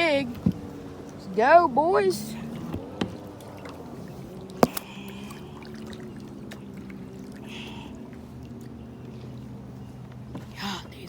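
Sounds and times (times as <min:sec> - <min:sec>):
jet ski engine droning: 0:00.0 - 0:11.0.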